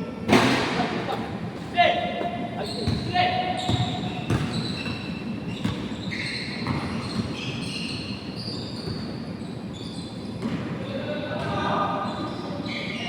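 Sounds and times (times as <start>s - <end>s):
sneakers squeaking: 1.5s - 13.0s
basketball bouncing on court: 2.8s - 7.4s, 10.4s - 11.8s.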